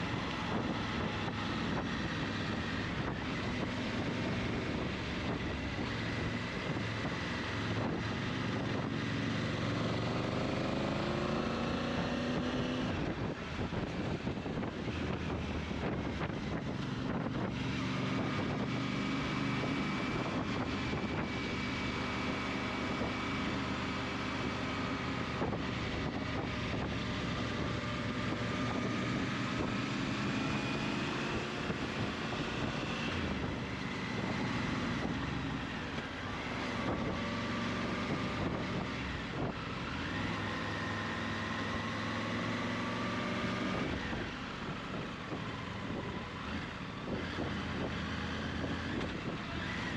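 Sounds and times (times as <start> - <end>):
wind rush on microphone: 0.0 - 10.7, 11.4 - 49.9
motorcycle engine running: 11.9 - 49.9.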